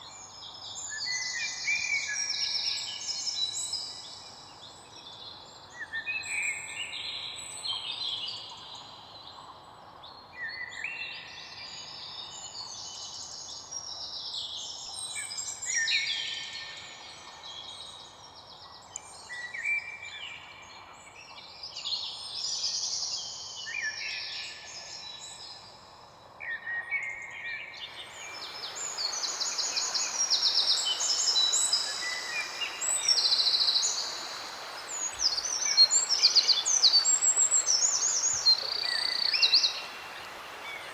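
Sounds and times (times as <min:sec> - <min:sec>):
songbirds chirping and trilling: 0:00.0 - 0:40.9
steady hiss: 0:27.8 - 0:40.9.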